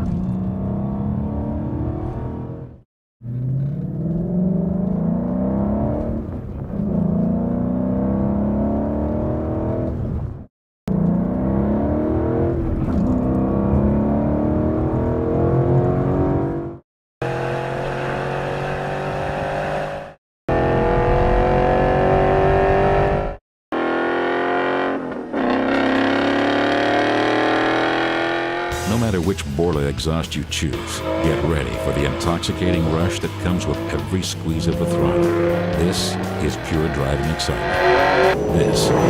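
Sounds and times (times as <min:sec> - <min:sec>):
car engine accelerating hard: 0:00.0 - 0:10.3, 0:10.9 - 0:28.9, 0:30.8 - 0:39.0.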